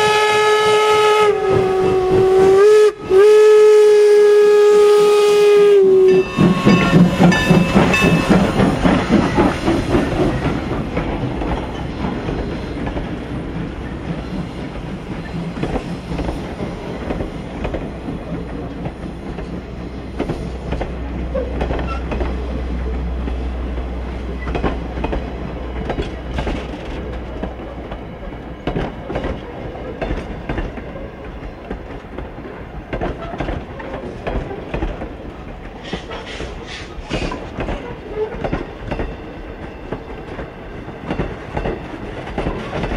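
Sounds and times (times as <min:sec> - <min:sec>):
steam train whistle: 0:00.0 - 0:08.3
train wheels clicking over rail joints: 0:00.6 - 0:03.2, 0:05.8 - 0:42.9.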